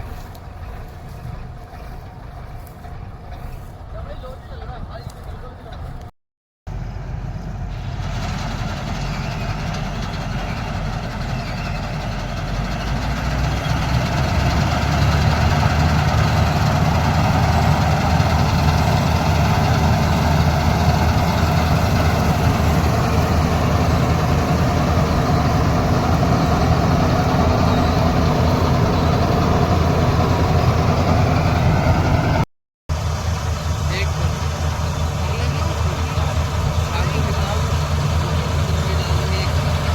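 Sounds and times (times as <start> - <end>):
heavy machinery engine running: 0.0 - 5.0, 6.7 - 39.9.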